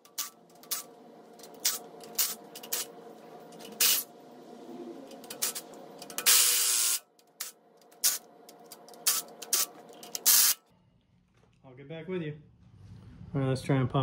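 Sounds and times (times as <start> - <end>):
bursts of hissing from tool: 9.0 - 10.6.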